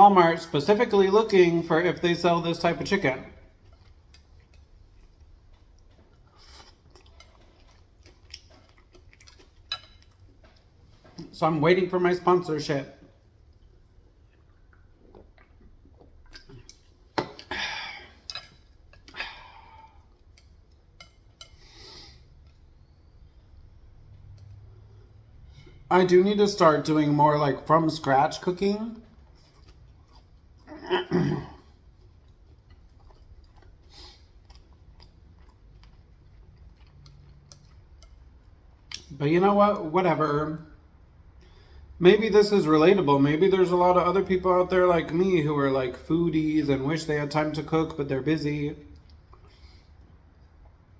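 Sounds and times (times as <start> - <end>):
chewing crispy fried chicken: 3.4 - 11.2, 13.0 - 27.2, 28.0 - 30.9, 31.6 - 39.2.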